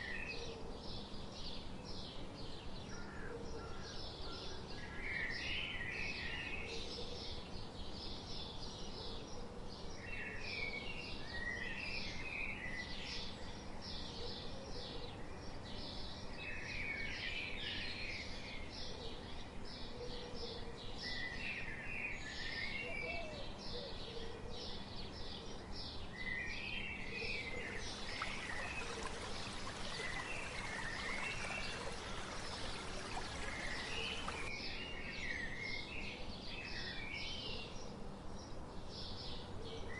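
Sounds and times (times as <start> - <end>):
steady background hiss: 20.7 - 39.9.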